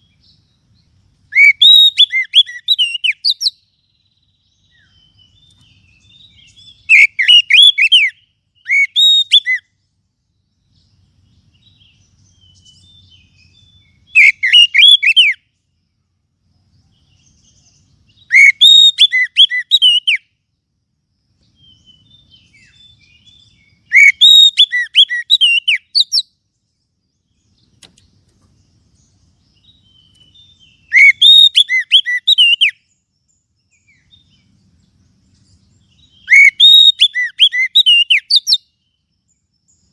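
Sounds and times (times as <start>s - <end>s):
faint soft bird notes: 0.0s - 39.9s
bird whistled call phrases: 1.3s - 3.8s, 4.5s - 9.8s, 11.6s - 15.5s, 17.4s - 20.3s, 21.6s - 26.4s, 29.6s - 33.0s, 35.8s - 38.9s.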